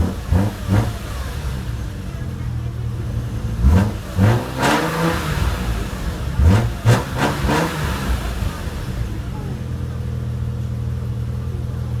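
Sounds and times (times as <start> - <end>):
sharp engine revs: 0.0 - 2.0, 3.2 - 9.2
car engine idling: 0.0 - 12.0.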